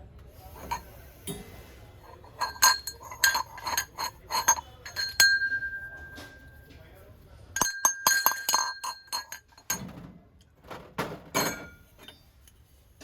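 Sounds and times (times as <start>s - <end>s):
metal utensils clinking: 0.6s - 6.6s, 7.6s - 9.9s, 11.4s - 12.2s.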